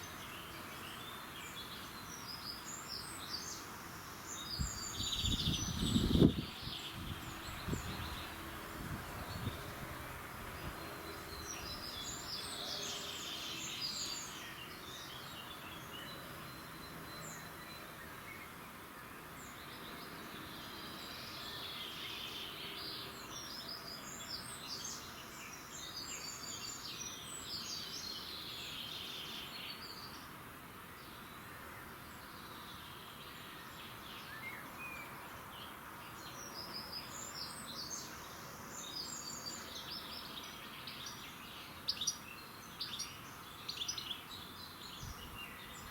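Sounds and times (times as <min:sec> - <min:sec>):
songbirds chirping and trilling: 0:00.0 - 0:45.9
steady background hiss: 0:00.0 - 0:45.9.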